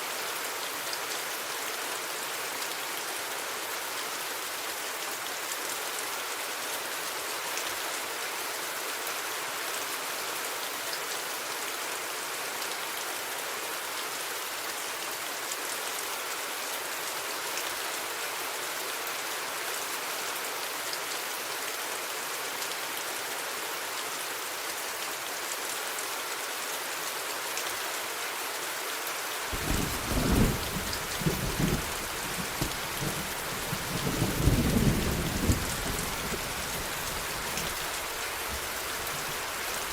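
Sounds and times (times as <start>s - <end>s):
steady rain falling: 0.0s - 39.9s
thunder rumbling: 29.5s - 39.3s.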